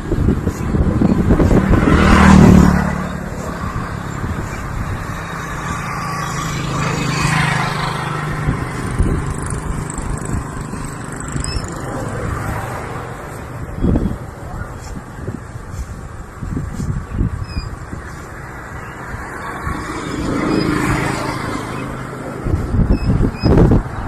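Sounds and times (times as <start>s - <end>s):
vehicle engine passing: 0.0s - 16.5s, 17.2s - 23.8s.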